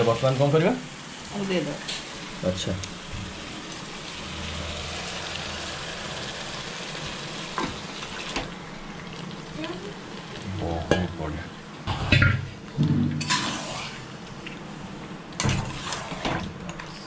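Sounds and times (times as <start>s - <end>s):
onion masala sizzling in oil: 0.0s - 11.8s, 15.6s - 16.3s.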